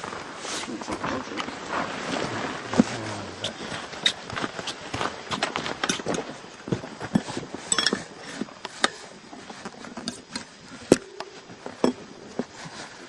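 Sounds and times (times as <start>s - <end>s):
metal tools clinking on wheel rim: 5.8s - 6.3s, 7.1s - 9.0s, 9.9s - 12.1s.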